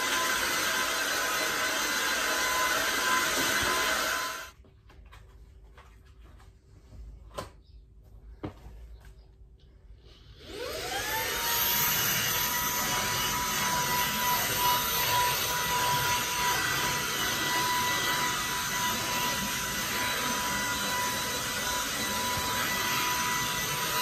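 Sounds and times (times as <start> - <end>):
vacuum cleaner motor whine: 0.0 - 4.6, 10.4 - 24.0.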